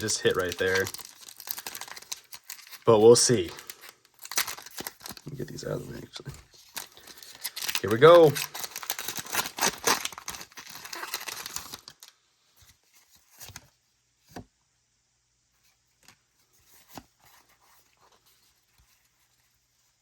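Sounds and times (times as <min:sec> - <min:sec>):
foil pack tearing: 0:00.0 - 0:05.3, 0:06.6 - 0:12.1.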